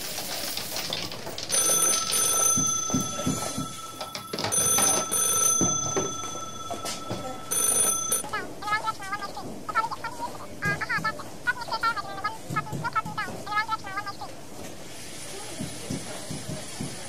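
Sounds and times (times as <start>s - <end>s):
telephone ringing: 1.2s - 10.8s.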